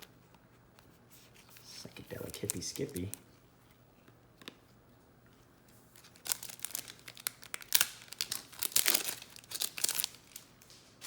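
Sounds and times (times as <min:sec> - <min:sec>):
foil wrapper tearing and crinkling: 0:02.1 - 0:03.2, 0:06.0 - 0:10.8.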